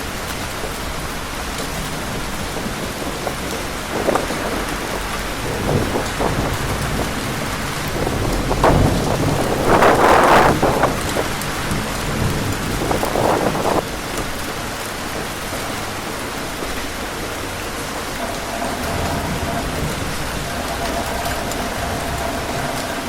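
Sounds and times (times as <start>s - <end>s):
heavy rain hissing: 0.0s - 23.0s.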